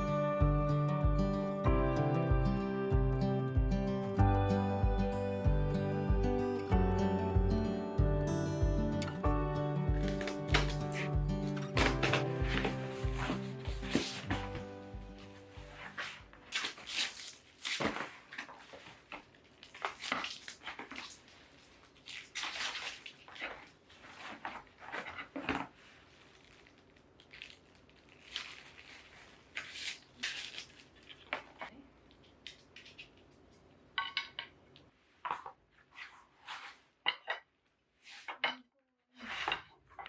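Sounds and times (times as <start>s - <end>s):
packaging crinkling: 10.1s - 33.3s.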